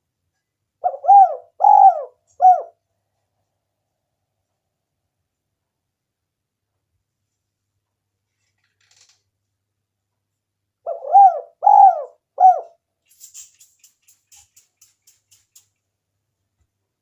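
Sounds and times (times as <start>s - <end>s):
dove cooing: 0.8s - 2.8s, 10.9s - 12.8s.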